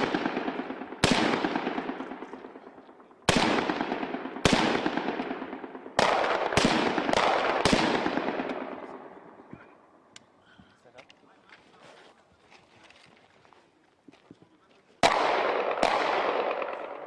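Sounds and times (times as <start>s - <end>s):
rifle shots echoing: 0.0s - 9.5s, 15.0s - 17.0s.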